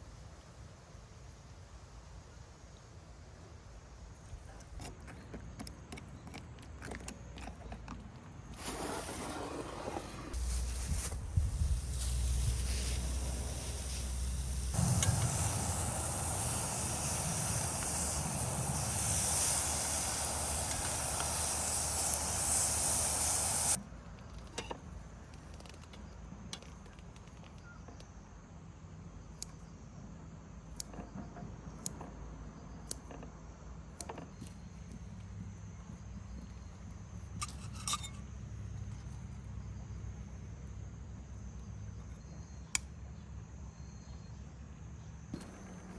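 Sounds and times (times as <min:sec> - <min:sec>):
loud steady hiss: 0:08.6 - 0:23.8.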